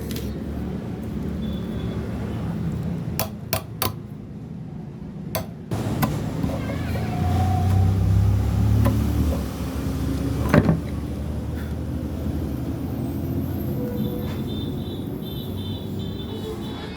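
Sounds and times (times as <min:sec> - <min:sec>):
sharp knocks: 0:05.4 - 0:06.5.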